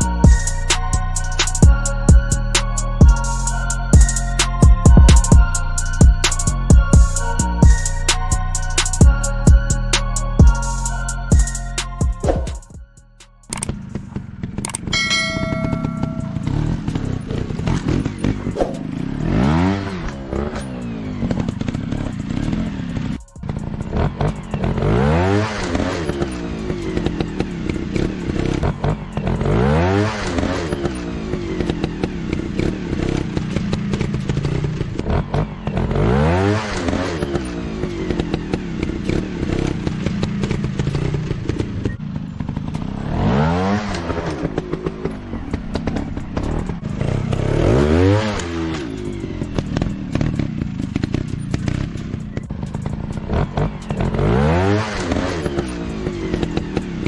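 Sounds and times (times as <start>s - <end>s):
dirt bike engines revving: 13.5s - 57.0s.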